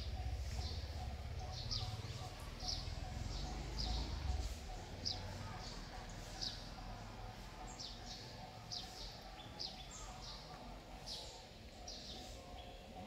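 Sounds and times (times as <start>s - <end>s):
bird chirping: 0.0s - 6.7s
faint outdoor background: 0.0s - 13.0s.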